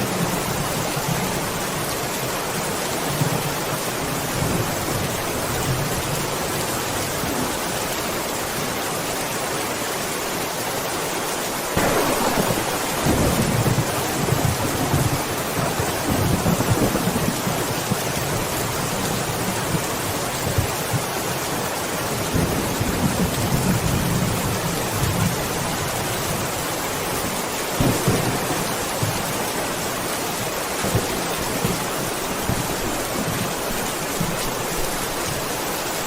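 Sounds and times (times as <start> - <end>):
steady rain: 0.0 - 36.0
low rolling thunder: 11.8 - 18.5, 27.8 - 29.6.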